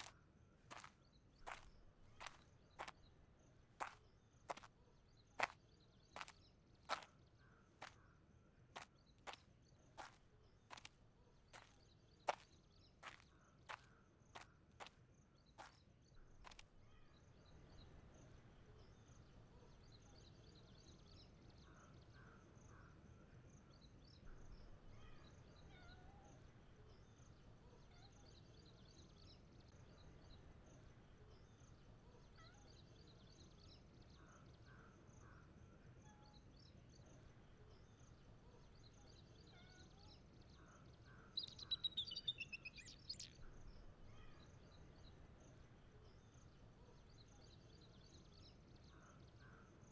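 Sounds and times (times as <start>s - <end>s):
faint bird chirps: 0.0s - 49.9s
bird calls with falling notes: 41.1s - 43.5s.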